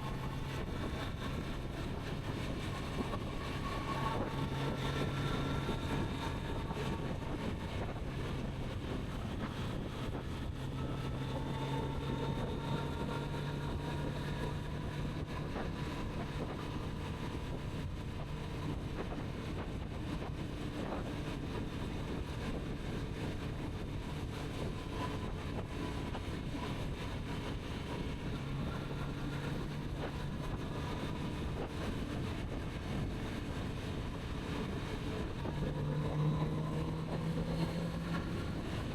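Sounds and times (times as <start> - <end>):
wind rushing over microphone: 0.0 - 38.9
motorcycle engine cruising: 34.5 - 38.9.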